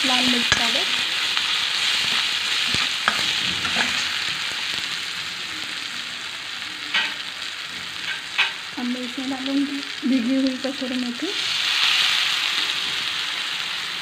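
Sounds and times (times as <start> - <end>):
food sizzling in hot oil: 0.0 - 14.0
ladle scraping and knocking pan: 1.9 - 4.3.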